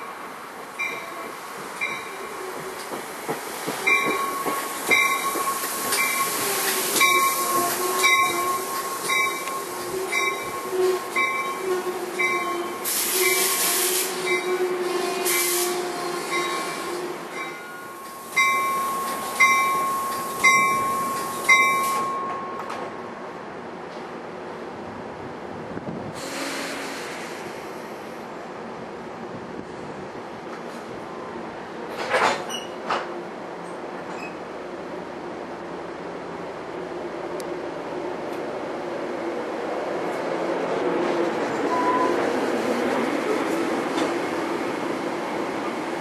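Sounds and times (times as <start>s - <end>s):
train bell ringing: 0.8s - 2.4s, 3.9s - 13.4s, 14.2s - 14.6s, 17.3s - 22.8s
air hiss bursts: 12.8s - 14.3s, 15.2s - 16.3s, 26.2s - 27.8s
wheels and brakes squealing: 32.3s - 32.8s, 34.1s - 34.4s.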